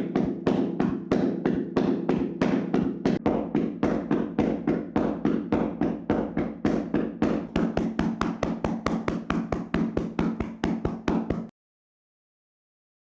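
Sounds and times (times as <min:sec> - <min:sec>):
hands slapping body: 0:00.0 - 0:11.5.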